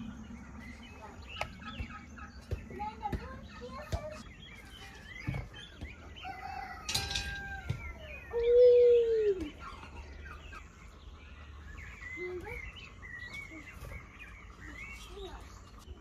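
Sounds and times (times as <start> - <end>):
small birds chirping: 0.0 - 16.0
rooster crowing: 6.2 - 8.1.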